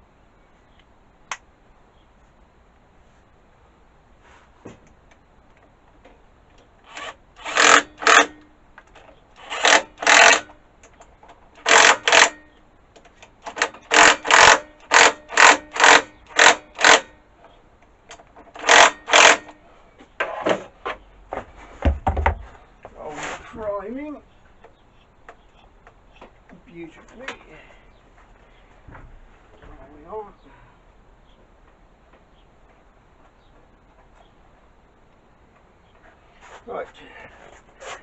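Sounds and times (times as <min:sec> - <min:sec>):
low thump: 0:21.8 - 0:22.6.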